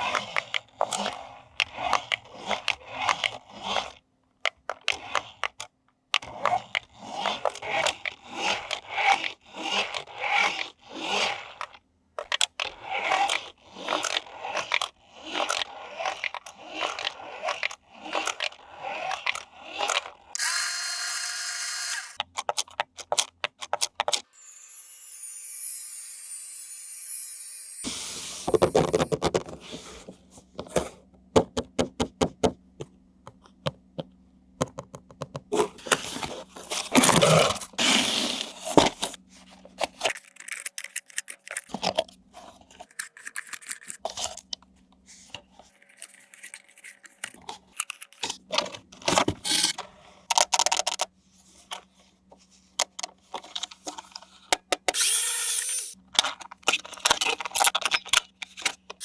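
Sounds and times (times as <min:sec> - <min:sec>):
plastic toy packaging handled: 0:28.4 - 0:31.0, 0:35.5 - 0:44.6, 0:45.2 - 0:52.1, 0:56.1 - 0:59.0.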